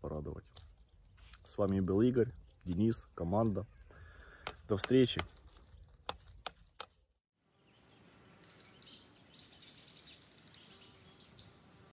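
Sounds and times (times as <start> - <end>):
faint outdoor background noise: 0.0 - 11.9
birds chirping in trills: 3.3 - 4.5, 7.5 - 11.9.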